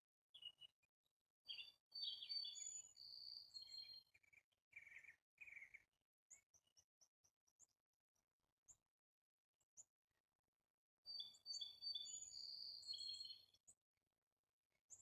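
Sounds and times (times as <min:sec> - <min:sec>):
songbird singing: 0:00.3 - 0:00.8, 0:01.5 - 0:06.8, 0:11.1 - 0:13.6.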